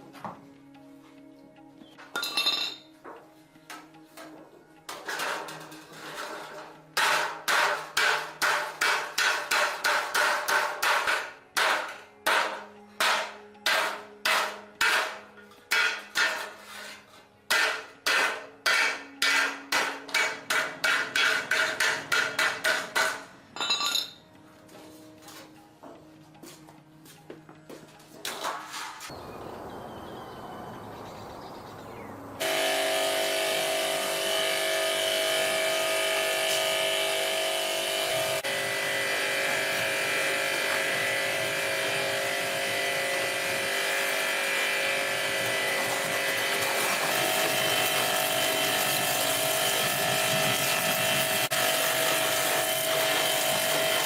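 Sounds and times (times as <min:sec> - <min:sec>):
hammer striking fast: 0:07.0 - 0:16.4.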